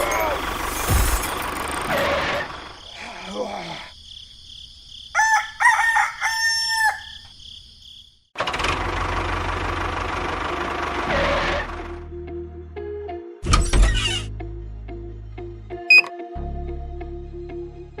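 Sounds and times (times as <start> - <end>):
rooster crowing: 5.1 - 7.4.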